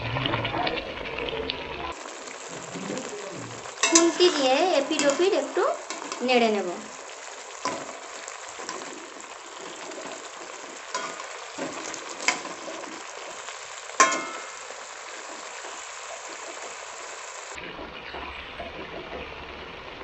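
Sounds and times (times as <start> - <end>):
chicken frying sizzle: 0.0 - 20.0
metal spatula clinking on pan: 3.8 - 6.3, 10.9 - 12.8, 14.0 - 14.7.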